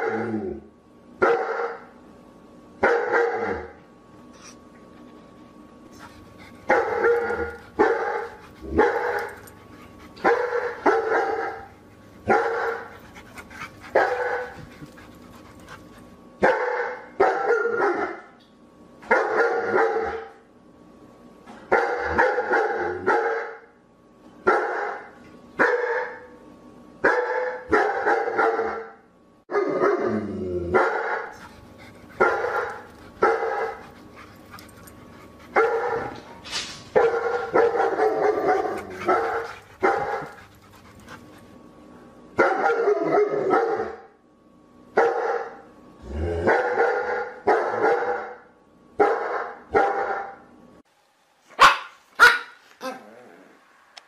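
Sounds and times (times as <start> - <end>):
dog barking: 1.2 - 1.9, 2.8 - 3.8, 6.7 - 9.4, 10.2 - 11.7, 12.3 - 12.9, 13.9 - 14.6, 16.4 - 18.3, 19.0 - 20.3, 21.7 - 23.6, 24.5 - 26.3, 27.0 - 30.0, 30.7 - 31.5, 32.2 - 33.9, 35.5 - 36.2, 36.9 - 40.4, 42.4 - 44.1, 45.0 - 45.6, 46.5 - 48.4, 49.0 - 50.4, 51.6 - 52.6.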